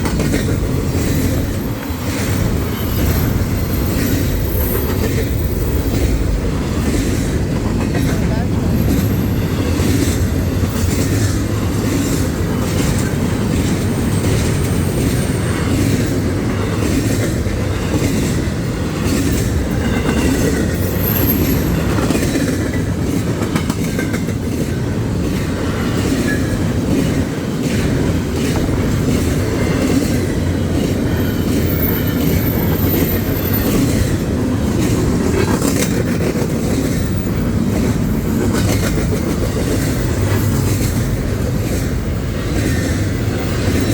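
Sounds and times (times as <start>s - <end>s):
train rumbling past: 0.0s - 43.9s
wheels clacking over rail joints: 0.0s - 43.9s
high wheel squeals: 1.2s - 5.9s, 19.6s - 22.0s, 30.6s - 34.0s.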